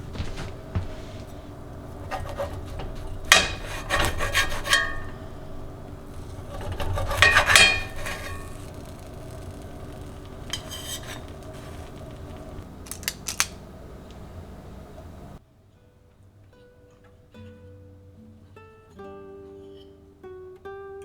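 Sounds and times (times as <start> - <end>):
steady low hum: 0.0 - 15.4.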